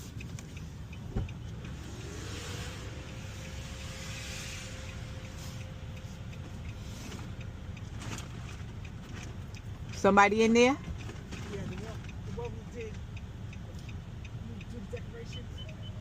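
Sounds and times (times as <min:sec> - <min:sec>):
car engine idling: 0:00.0 - 0:16.0
faint steady whine: 0:00.1 - 0:07.9.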